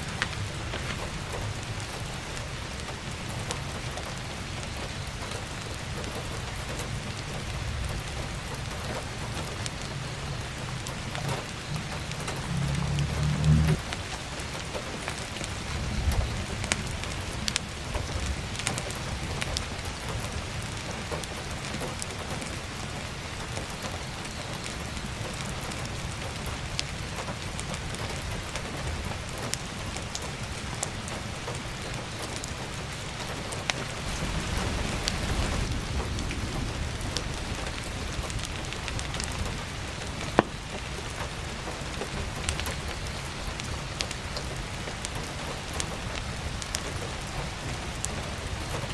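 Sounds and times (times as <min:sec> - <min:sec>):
burning firewood crackling: 0:00.0 - 0:48.9
heavy rain falling: 0:00.0 - 0:48.9
low rumble: 0:09.9 - 0:14.2, 0:33.9 - 0:40.3.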